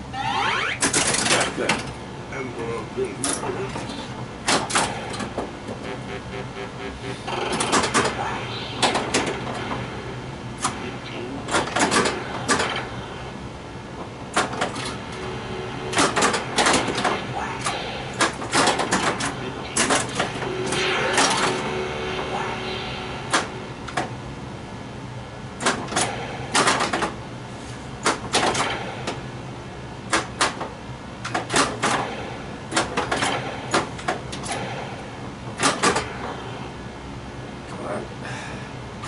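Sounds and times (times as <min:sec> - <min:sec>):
electronic game sound effects: 0:00.0 - 0:01.6, 0:04.8 - 0:13.4, 0:14.9 - 0:24.2.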